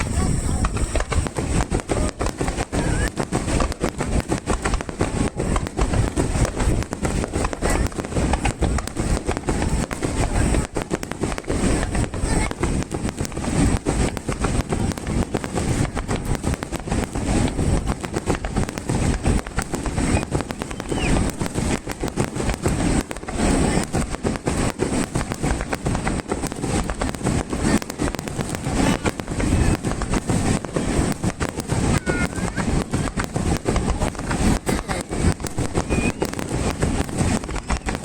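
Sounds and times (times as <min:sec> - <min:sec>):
fireworks bursting and crackling: 0:00.0 - 0:38.0.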